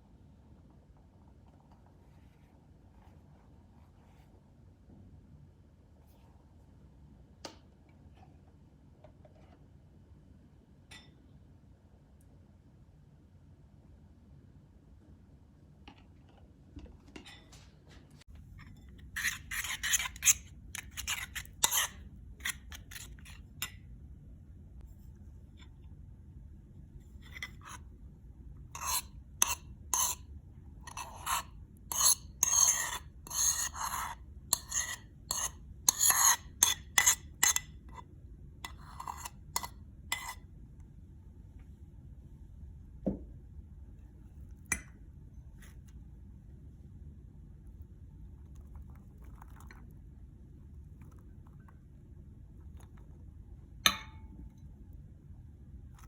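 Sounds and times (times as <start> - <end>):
metal utensil scraping a pan: 18.6 - 23.4, 30.9 - 37.7.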